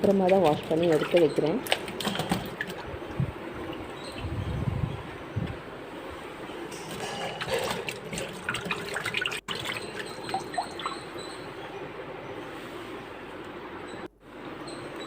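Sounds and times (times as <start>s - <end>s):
water splashing and dripping: 0.0s - 4.3s, 6.8s - 11.2s.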